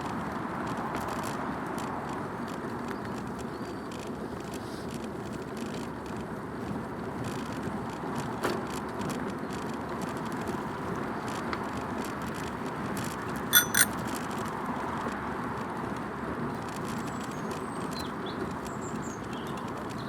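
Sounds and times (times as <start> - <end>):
bicycle tyres rolling on path: 0.0 - 13.0, 15.1 - 20.0
bicycle bell ringing: 13.6 - 14.0.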